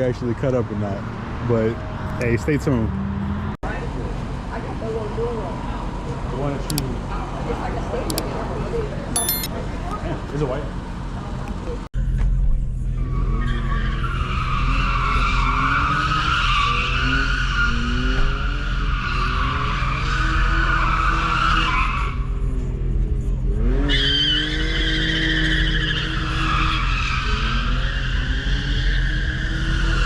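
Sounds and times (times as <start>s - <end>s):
car tyres squealing: 13.0s - 22.9s, 23.6s - 30.0s
car engine at high revs: 14.5s - 30.0s.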